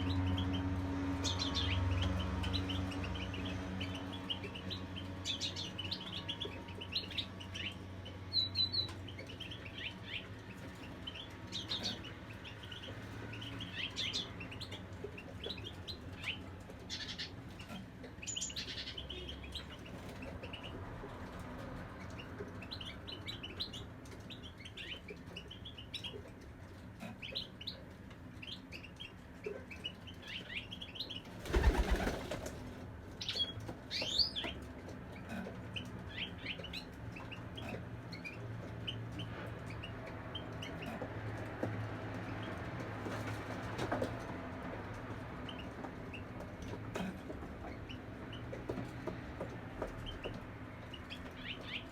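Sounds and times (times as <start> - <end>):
small birds chirping: 0.0 - 32.4, 33.1 - 44.0, 45.1 - 51.9
wings fluttering: 31.3 - 32.8.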